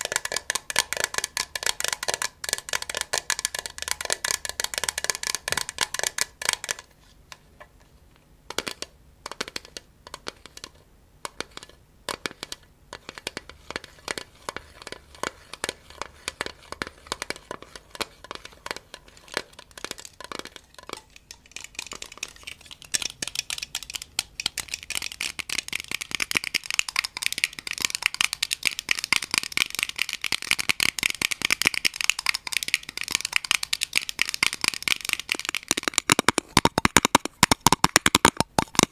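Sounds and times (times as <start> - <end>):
tapping and scratching: 0.0 - 7.4, 8.5 - 38.9.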